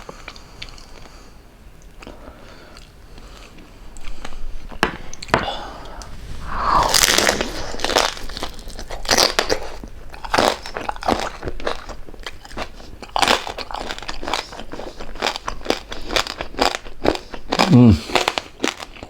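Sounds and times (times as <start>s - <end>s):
chewing crispy food: 0.0s - 5.3s, 6.8s - 19.0s.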